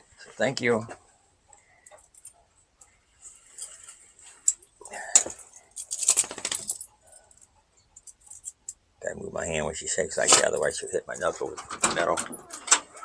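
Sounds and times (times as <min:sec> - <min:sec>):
collar metal jangling: 0:01.5 - 0:08.9
dog shaking itself: 0:06.0 - 0:06.8.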